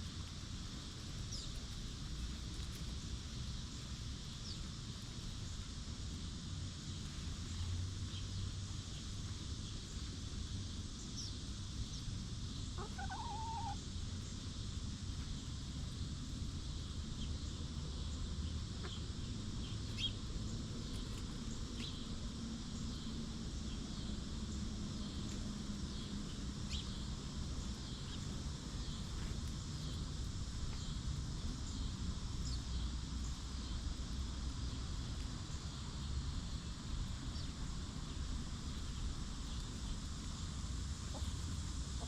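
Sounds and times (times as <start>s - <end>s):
insect chorus: 0.0s - 42.0s
bird chirps: 19.9s - 20.2s.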